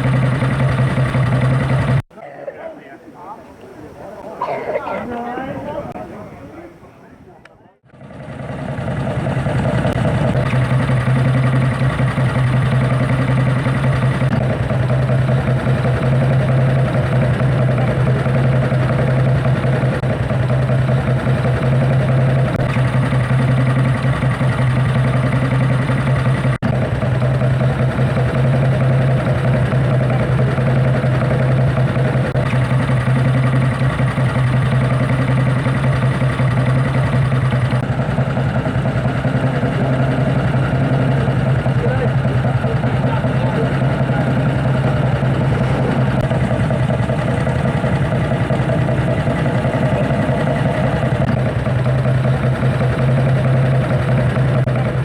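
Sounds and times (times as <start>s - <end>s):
motorcycle engine idling: 0.0s - 2.0s, 7.8s - 55.0s.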